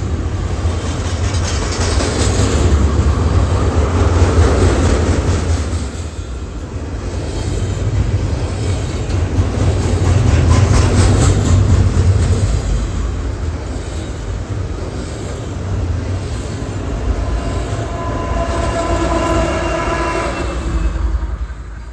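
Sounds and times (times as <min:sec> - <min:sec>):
freight train rumbling: 0:00.0 - 0:21.9
train wheels clicking on rails: 0:00.0 - 0:21.9
train horn chord: 0:16.9 - 0:21.9.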